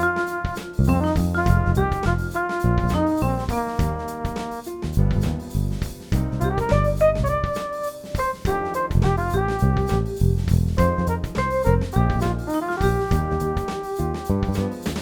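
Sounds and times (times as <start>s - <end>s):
jazz music: 0.0s - 15.0s.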